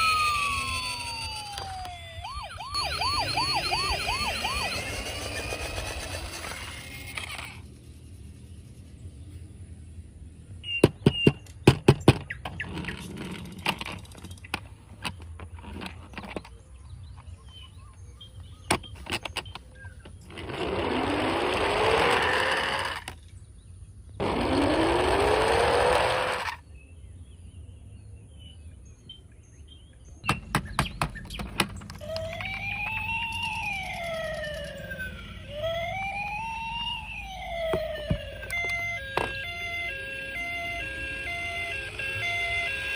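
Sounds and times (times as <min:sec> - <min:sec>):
toy cars clicking and knocking: 0:00.0 - 0:02.0, 0:03.0 - 0:07.8, 0:11.1 - 0:16.6, 0:18.7 - 0:23.3, 0:24.2 - 0:26.6, 0:30.3 - 0:42.9
toy electronic siren wailing: 0:00.0 - 0:07.7, 0:20.3 - 0:23.1, 0:24.2 - 0:26.6, 0:31.8 - 0:42.9
rising whirring: 0:00.0 - 0:09.1, 0:20.1 - 0:23.2, 0:24.2 - 0:26.6, 0:30.4 - 0:42.9.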